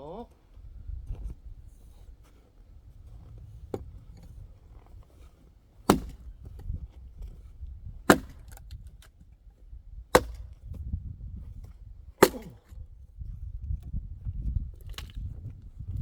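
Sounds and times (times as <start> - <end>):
axe splitting firewood: 5.4 - 9.1, 10.1 - 10.9, 11.5 - 12.8.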